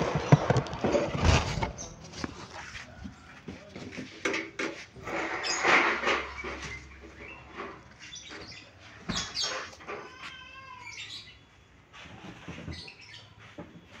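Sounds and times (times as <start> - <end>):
birds chirping: 5.1 - 14.0.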